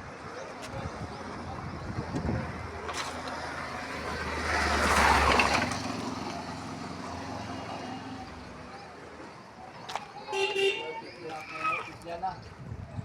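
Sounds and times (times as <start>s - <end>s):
vehicle passing by: 3.2s - 8.8s.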